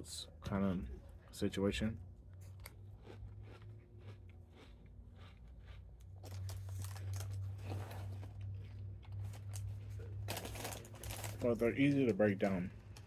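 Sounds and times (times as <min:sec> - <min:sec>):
low steady rumble: 0:00.0 - 0:13.0
person chewing cereal: 0:02.2 - 0:11.6.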